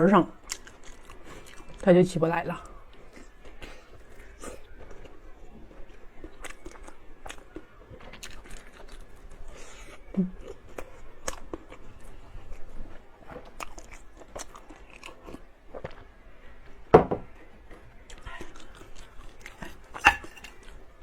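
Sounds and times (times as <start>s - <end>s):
person biting and chewing: 0.4s - 1.8s, 6.2s - 12.7s, 13.4s - 16.0s, 18.1s - 20.8s.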